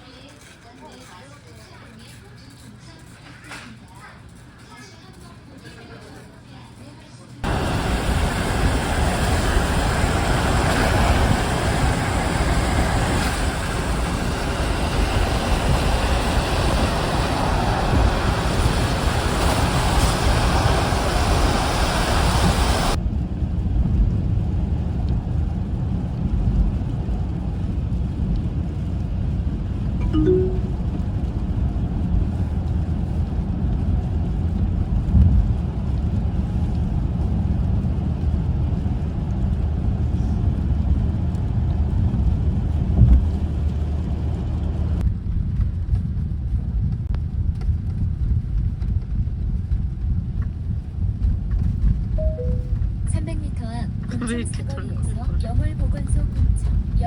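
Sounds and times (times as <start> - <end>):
loud hiss: 7.4 - 23.0
vehicle road rumble: 7.4 - 30.0, 30.8 - 57.0.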